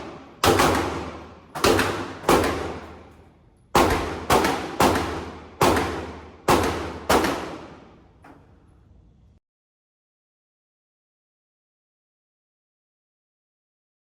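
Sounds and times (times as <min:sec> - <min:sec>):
pistol shots echoing: 0:00.0 - 0:08.1.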